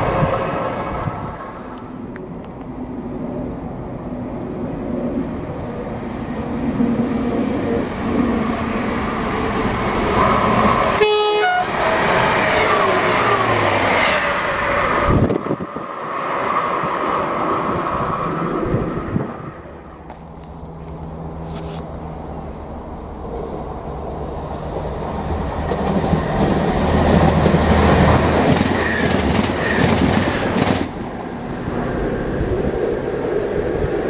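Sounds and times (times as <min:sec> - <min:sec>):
diesel train rumble: 0:00.0 - 0:34.0
train horn blast: 0:10.9 - 0:13.5.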